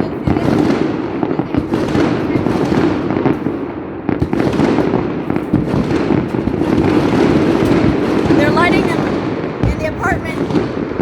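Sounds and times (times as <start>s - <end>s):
fireworks and firecrackers banging: 0.0s - 11.0s.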